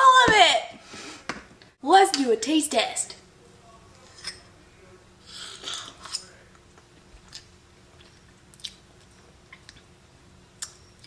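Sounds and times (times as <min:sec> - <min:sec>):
person chewing cake: 0:07.1 - 0:09.9.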